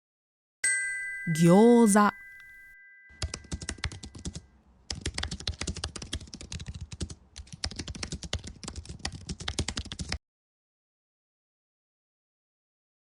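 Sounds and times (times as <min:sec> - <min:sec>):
computer keyboard typing: 0:03.2 - 0:10.2.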